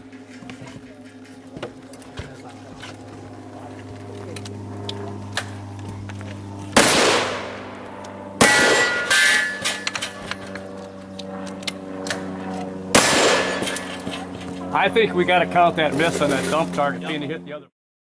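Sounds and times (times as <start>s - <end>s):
loud gunshots: 6.8s - 10.0s, 12.9s - 14.0s
steel target ringing: 6.8s - 10.6s, 12.9s - 14.1s.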